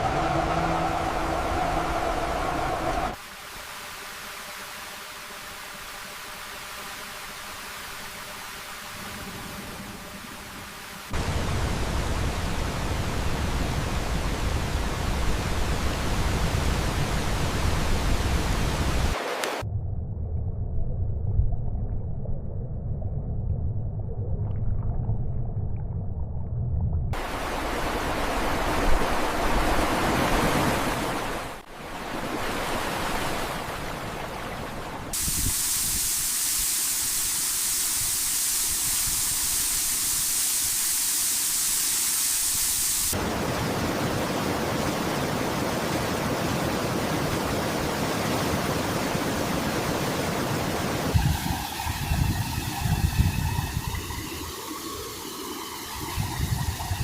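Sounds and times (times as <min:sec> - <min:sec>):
floodwater rushing: 0:00.0 - 0:03.2, 0:11.0 - 0:19.6, 0:27.2 - 0:57.0.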